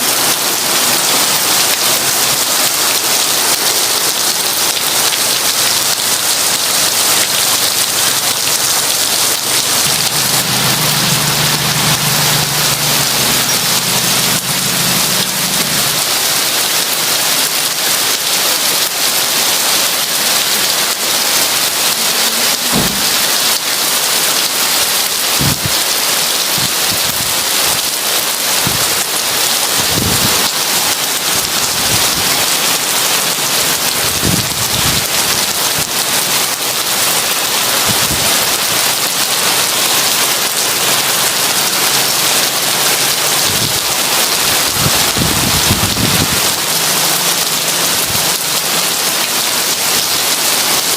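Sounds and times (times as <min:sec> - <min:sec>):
heavy rain falling: 0:00.0 - 0:50.9
thunder rumbling: 0:09.1 - 0:16.4, 0:22.5 - 0:23.6, 0:25.4 - 0:25.7, 0:29.8 - 0:30.6.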